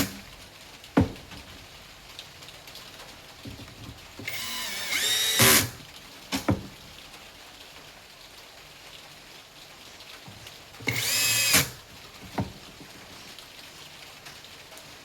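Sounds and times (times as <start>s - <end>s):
power screwdriver whining: 4.3s - 5.7s, 10.9s - 11.8s.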